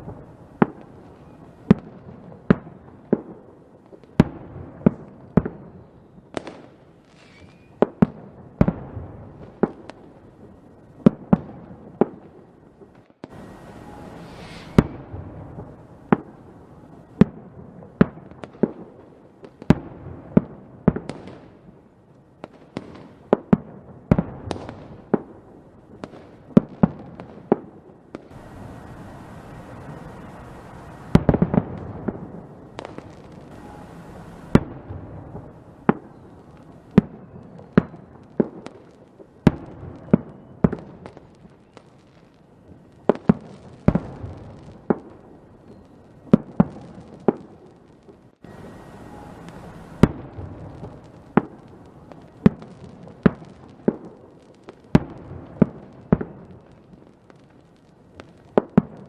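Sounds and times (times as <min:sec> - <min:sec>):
crackling hiss: 0:00.0 - 0:08.0, 0:12.4 - 0:20.3, 0:28.1 - 0:59.0
fireworks bangs: 0:00.0 - 0:21.8, 0:22.4 - 0:59.0.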